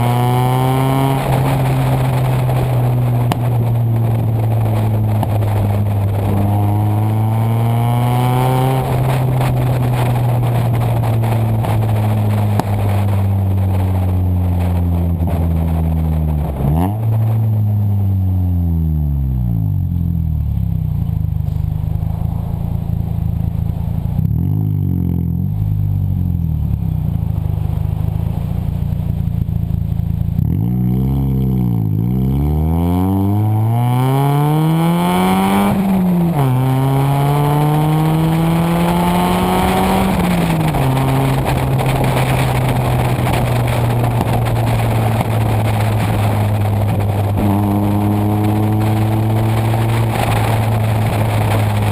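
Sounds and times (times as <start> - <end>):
car engine revving: 0.0 - 51.9.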